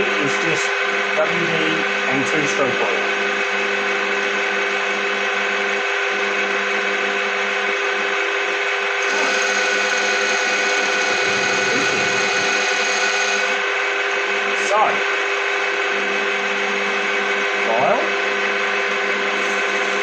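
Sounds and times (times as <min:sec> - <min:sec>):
metal lathe whining: 0:09.0 - 0:13.6, 0:19.3 - 0:20.0.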